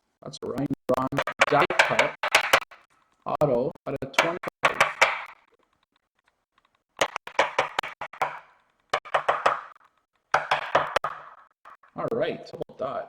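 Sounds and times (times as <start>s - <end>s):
sharp ringing knocks: 7.0s - 9.8s, 10.4s - 11.8s.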